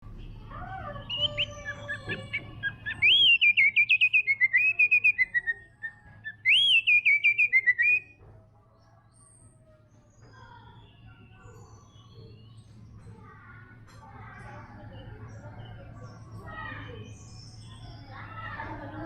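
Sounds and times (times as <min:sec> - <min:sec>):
quiet bird chirps: 0:00.0 - 0:19.0
bird singing whistled phrases: 0:00.9 - 0:08.2.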